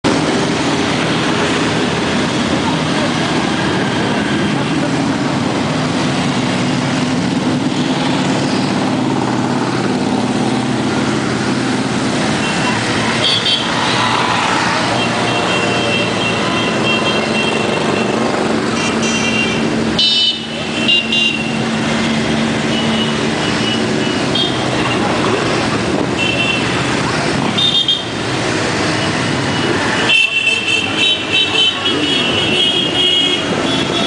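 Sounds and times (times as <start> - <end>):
motorcycles riding past: 0.1 - 34.0
motorcycle horn toots: 15.0 - 21.6, 30.0 - 34.0.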